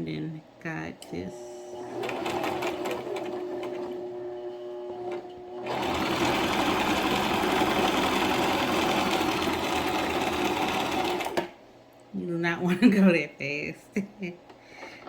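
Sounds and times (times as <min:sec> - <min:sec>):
electric sewing machine stitching: 0:01.4 - 0:11.6.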